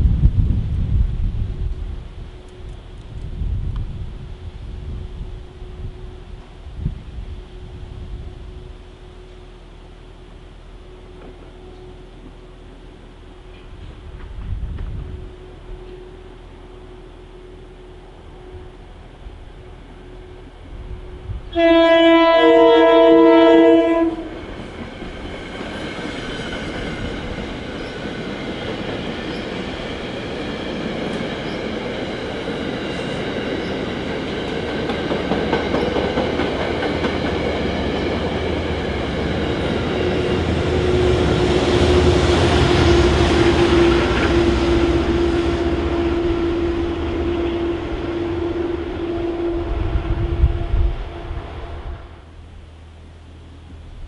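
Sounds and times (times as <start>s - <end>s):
train wheels rattling on rail: 10.8s - 16.9s, 18.1s - 51.6s
locomotive horn blast: 15.2s - 24.5s, 40.3s - 52.4s.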